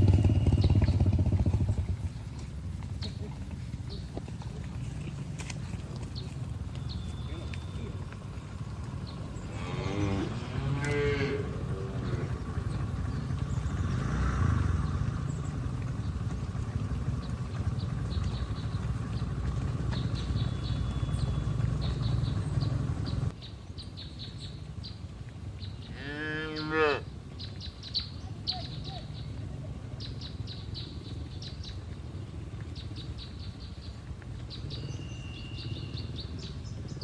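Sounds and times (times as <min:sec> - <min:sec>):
steady low rumble: 0:00.0 - 0:25.9
cattle mooing: 0:09.4 - 0:12.9, 0:25.9 - 0:27.0.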